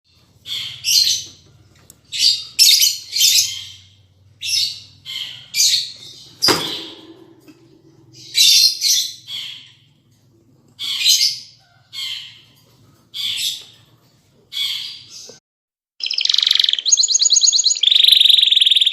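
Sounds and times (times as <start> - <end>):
birds chirping shrilly: 0.4 - 1.4, 2.0 - 10.0
sharp ringing knock: 6.4 - 8.5.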